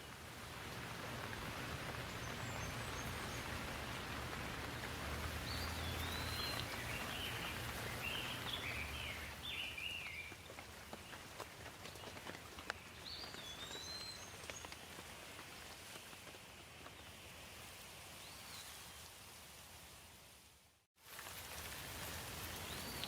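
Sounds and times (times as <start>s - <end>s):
water drips: 0.0s - 16.9s
steady rain: 0.0s - 23.0s
bird chirping: 4.8s - 10.4s.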